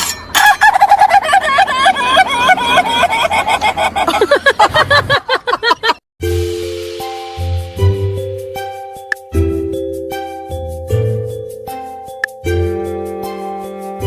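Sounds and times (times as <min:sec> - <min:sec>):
music with held tones: 0:06.2 - 0:14.0.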